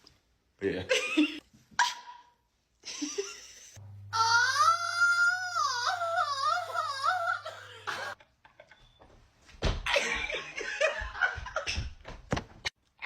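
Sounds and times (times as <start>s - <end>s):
laughter: 2.8s - 3.8s, 7.5s - 9.1s, 9.9s - 12.0s.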